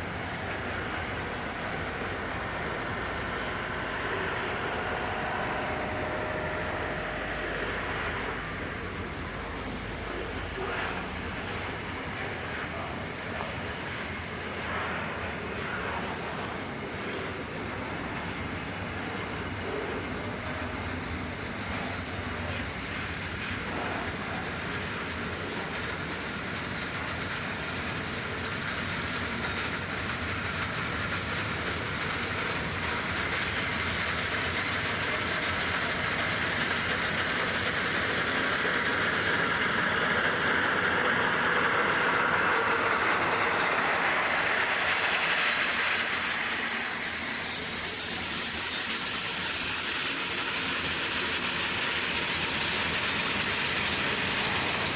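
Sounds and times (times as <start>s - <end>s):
freight train rolling past: 0.0s - 54.9s.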